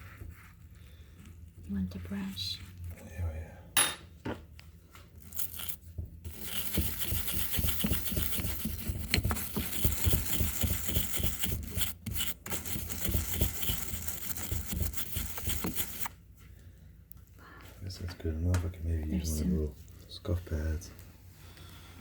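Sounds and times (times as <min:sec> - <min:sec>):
small brush scrubbing: 0:00.0 - 0:03.2, 0:05.2 - 0:16.1.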